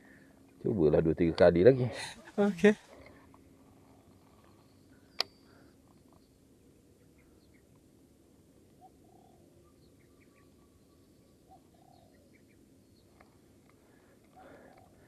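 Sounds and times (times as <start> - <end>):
birds calling faintly: 0.0 - 15.0.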